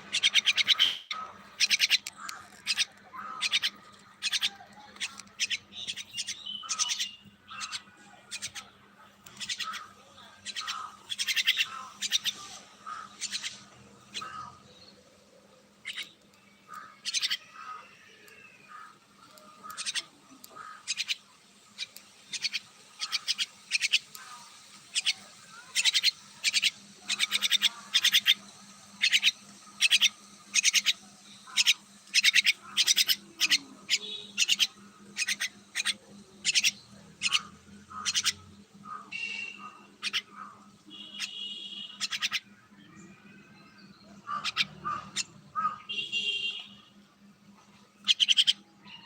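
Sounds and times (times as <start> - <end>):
myna calling: 0.0 - 14.7, 15.8 - 42.5, 44.0 - 46.1.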